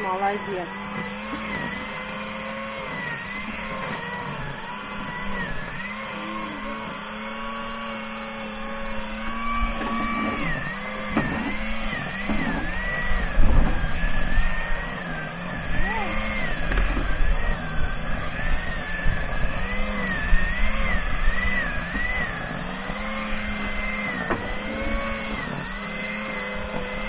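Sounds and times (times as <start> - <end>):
motor running: 0.0 - 27.0
low thumps and rumble: 8.6 - 25.8.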